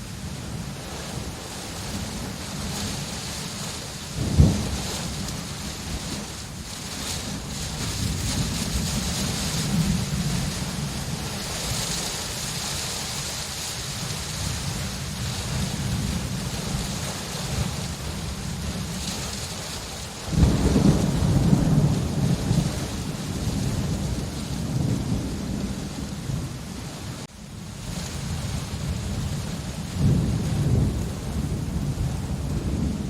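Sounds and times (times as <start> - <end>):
steady rain: 0.0 - 33.0
thunder rumbling: 0.0 - 33.0
loud thunder clap: 4.2 - 5.2, 20.3 - 26.4.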